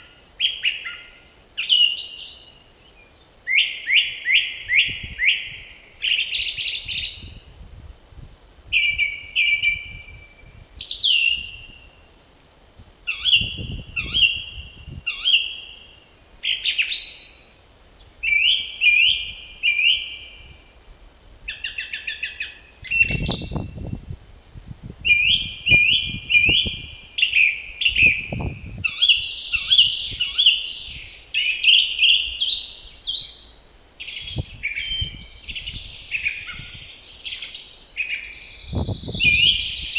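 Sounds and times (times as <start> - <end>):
songbirds chirping: 0.0 - 8.1, 8.7 - 24.1, 25.0 - 39.9
wind gusts rumbling: 22.8 - 27.2, 27.8 - 31.2, 38.6 - 39.9.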